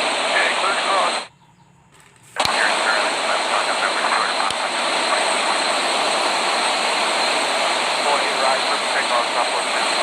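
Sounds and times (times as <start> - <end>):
jet engine noise: 0.0 - 1.3, 2.2 - 10.0.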